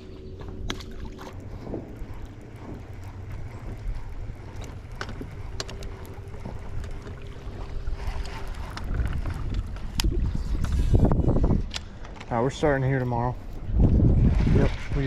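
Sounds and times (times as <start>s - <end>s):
faint steady hum: 0.0s - 14.0s
water around boat: 0.0s - 15.0s
wind buffeting microphone: 0.0s - 15.0s.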